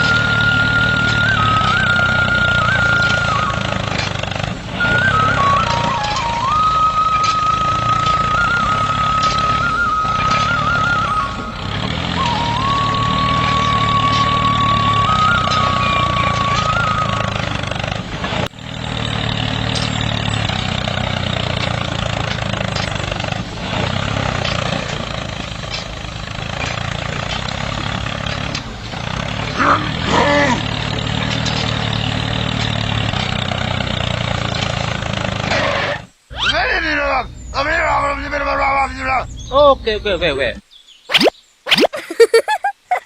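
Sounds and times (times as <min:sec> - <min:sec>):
small motor humming: 0:00.0 - 0:36.4.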